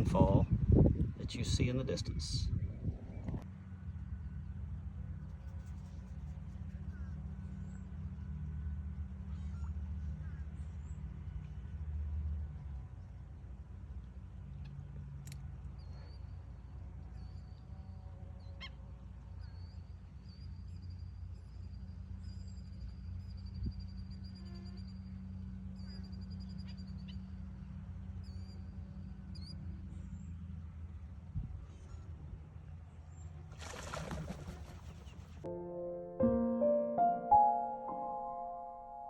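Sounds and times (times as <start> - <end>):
steady low rumble: 0.0 - 3.4.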